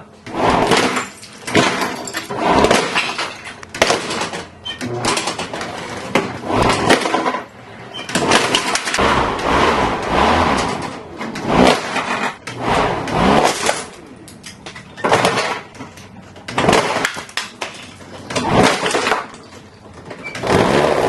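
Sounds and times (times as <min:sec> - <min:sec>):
lawnmower smashing plastic toy: 0:00.3 - 0:07.5, 0:08.1 - 0:09.0, 0:13.0 - 0:14.0, 0:14.7 - 0:21.0.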